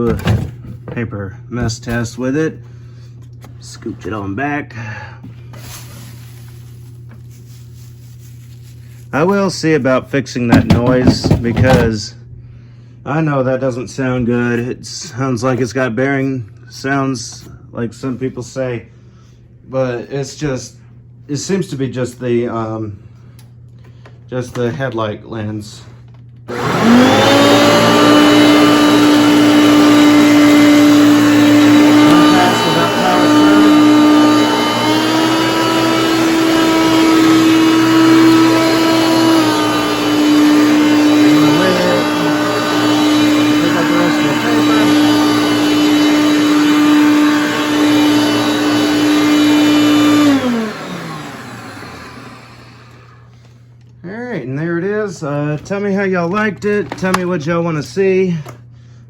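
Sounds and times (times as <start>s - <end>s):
motor winding down: 26.5s - 53.2s
vacuum cleaner motor whine: 26.5s - 53.6s.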